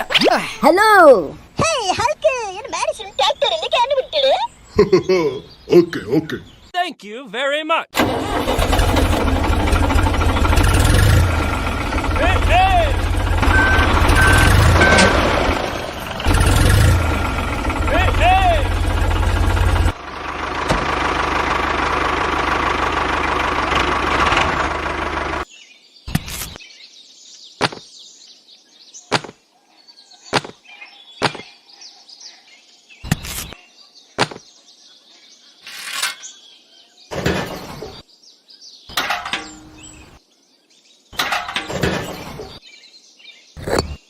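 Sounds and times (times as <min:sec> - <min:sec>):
tractor engine idling: 0:08.0 - 0:25.4
sharp clicks and knocks: 0:38.9 - 0:39.7.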